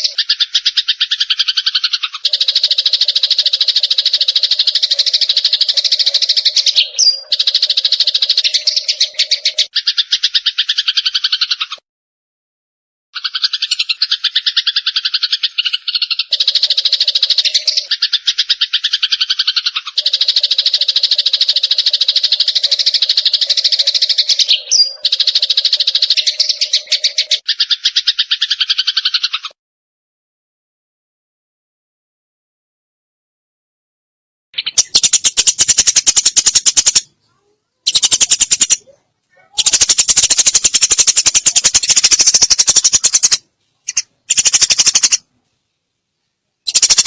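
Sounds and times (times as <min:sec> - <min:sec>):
sparrow chirping rapidly: 0:00.0 - 0:11.8, 0:13.2 - 0:29.5, 0:34.6 - 0:37.1, 0:37.8 - 0:45.2, 0:46.6 - 0:47.0.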